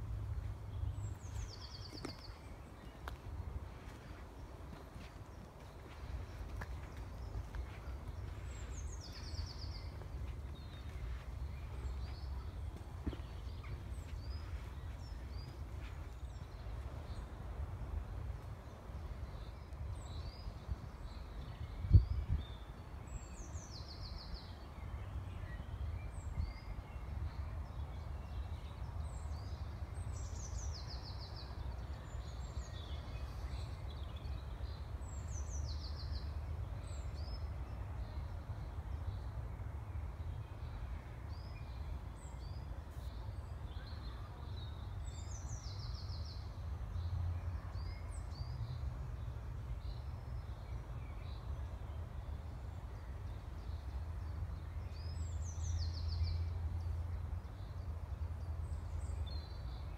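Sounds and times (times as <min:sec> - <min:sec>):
bird song with trill: 0:00.7 - 0:03.2, 0:04.3 - 0:17.4, 0:18.6 - 0:39.4, 0:49.8 - 0:59.9.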